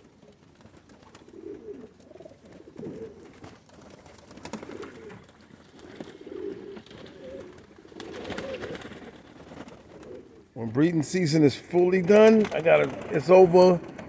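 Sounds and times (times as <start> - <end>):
pigeons cooing: 0.0 - 10.6.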